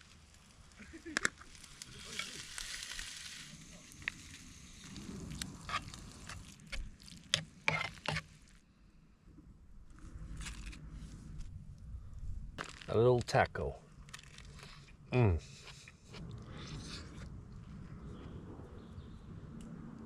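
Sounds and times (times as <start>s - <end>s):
food sizzling in a pan: 1.0s - 6.6s.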